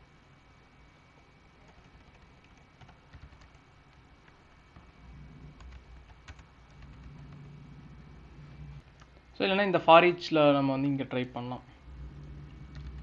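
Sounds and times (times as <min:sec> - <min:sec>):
low hum: 0:00.0 - 0:10.2, 0:10.9 - 0:13.0
keyboard typing: 0:01.6 - 0:07.7, 0:11.9 - 0:13.0.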